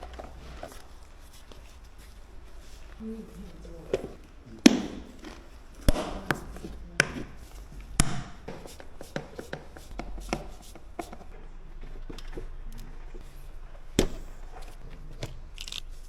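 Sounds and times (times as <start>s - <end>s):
knocks of hard objects handled: 3.9s - 7.4s.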